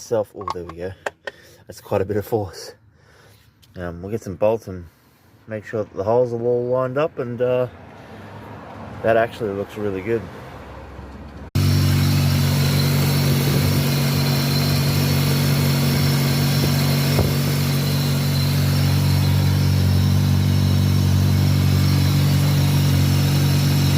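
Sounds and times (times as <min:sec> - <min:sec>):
car engine idling: 0:11.0 - 0:23.9.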